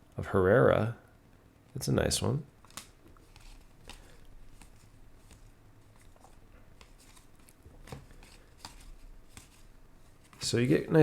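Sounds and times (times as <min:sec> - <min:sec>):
cards clicking and sliding: 0:02.6 - 0:10.8.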